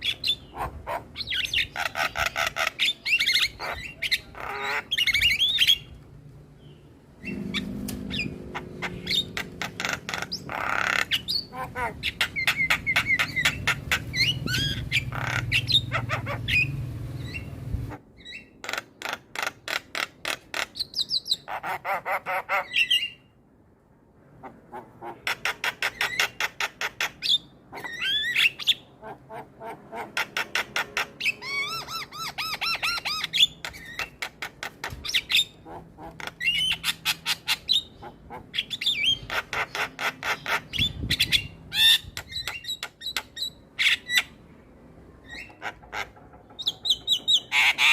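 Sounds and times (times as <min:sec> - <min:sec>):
low hum: 0:06.0 - 0:10.1.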